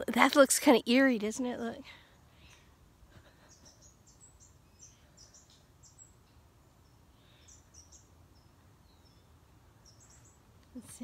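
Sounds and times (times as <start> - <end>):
outdoor hush: 0.0 - 11.0
wild birds chirping: 1.2 - 11.0.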